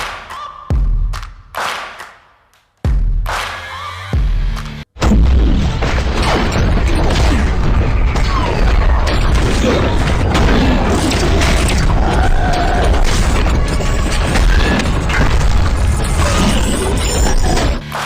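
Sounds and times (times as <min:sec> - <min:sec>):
music: 0:00.0 - 0:18.0
mechanical clatter: 0:05.8 - 0:17.8.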